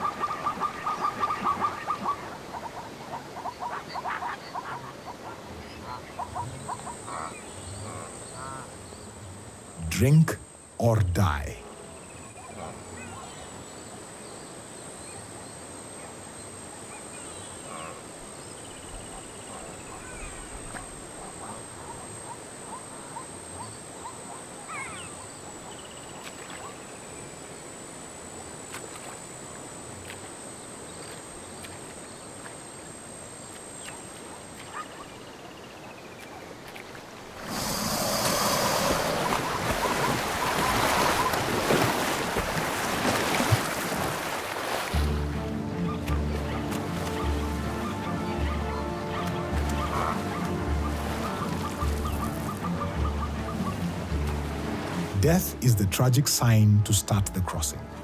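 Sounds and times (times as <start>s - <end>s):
loud splashing churning water: 37.2s - 45.4s, 46.2s - 52.6s
high insect buzz: 37.3s - 45.0s.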